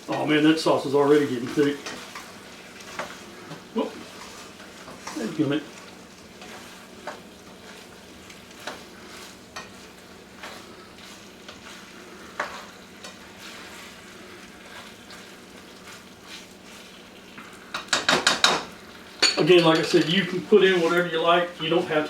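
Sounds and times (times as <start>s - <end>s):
food sizzling in a hot pan: 0.0s - 22.0s
utensil scraping and tapping pan: 8.5s - 13.8s, 17.4s - 21.0s.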